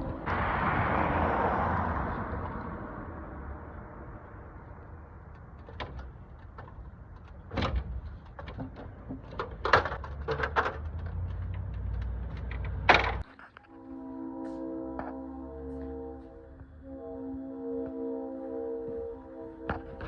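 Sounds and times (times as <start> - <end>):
steady low rumble: 0.0 - 8.2
sharp knocks and clatters: 5.5 - 13.4.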